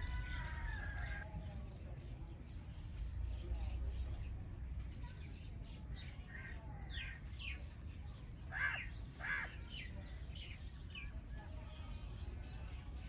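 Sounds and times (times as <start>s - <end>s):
harsh bird calls: 0.0s - 1.2s
small birds chirping: 0.0s - 13.0s.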